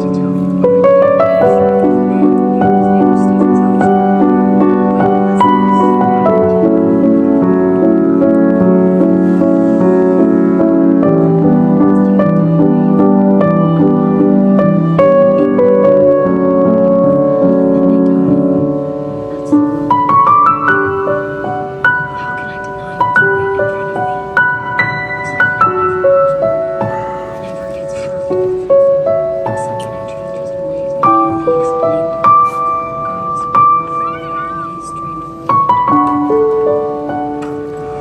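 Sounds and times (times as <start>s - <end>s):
piano music: 0.0s - 38.0s.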